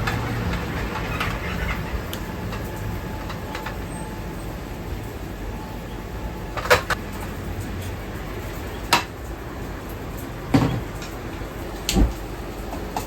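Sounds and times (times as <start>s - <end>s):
kitchen utensils clinking: 6.5s - 7.0s.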